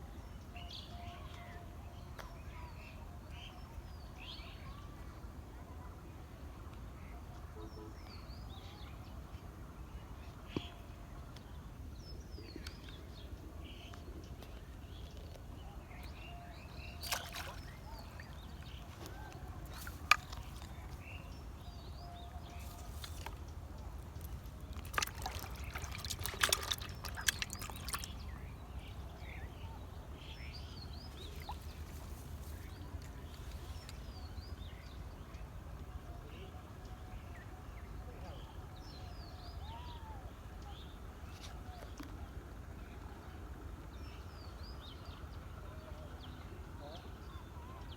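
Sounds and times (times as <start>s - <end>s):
low steady rumble: 0.0s - 47.9s
water splashing and trickling: 16.8s - 29.2s, 31.0s - 34.2s.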